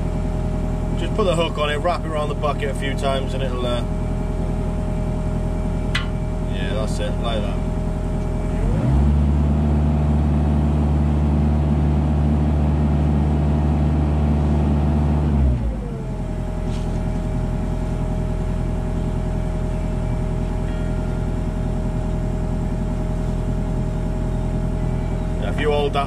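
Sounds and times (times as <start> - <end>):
diesel engine revving and idling: 0.0 - 26.0.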